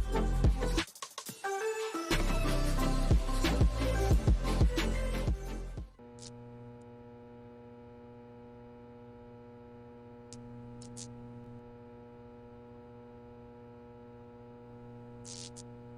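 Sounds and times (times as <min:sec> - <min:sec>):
low electrical hum: 0:06.0 - 0:15.9.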